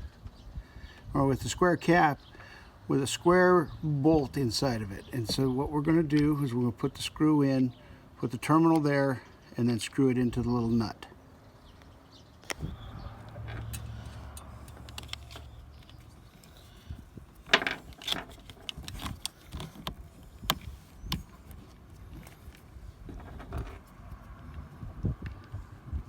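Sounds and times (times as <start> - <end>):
low rumble: 12.6 - 16.3.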